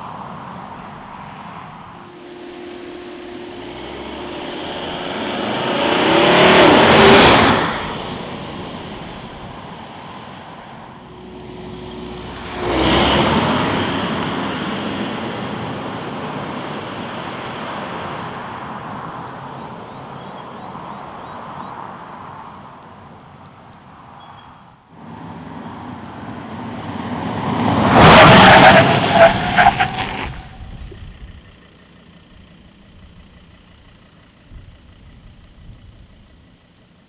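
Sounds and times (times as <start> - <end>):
car driving past at speed: 0.6 - 22.1, 25.0 - 31.2.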